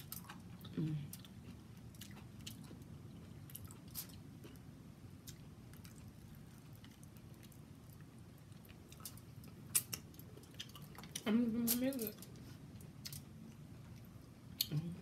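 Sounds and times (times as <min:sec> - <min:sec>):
wet chewing and lip-smacking: 0:00.0 - 0:14.7.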